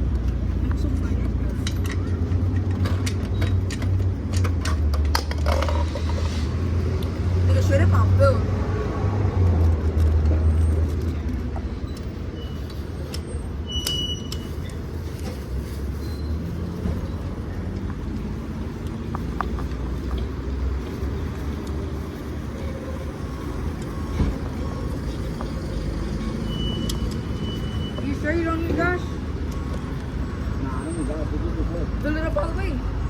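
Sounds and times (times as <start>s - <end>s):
low engine rumble: 0.0s - 33.0s
road noise: 0.0s - 33.0s
short high beeps: 26.4s - 28.3s.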